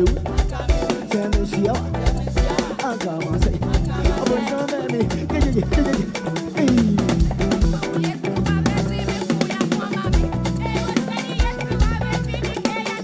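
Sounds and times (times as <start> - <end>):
sustained bass line: 0.0 - 0.8, 1.6 - 2.6, 3.4 - 4.3, 5.0 - 9.2, 10.1 - 10.9, 11.7 - 12.5
drum kit: 0.0 - 13.0.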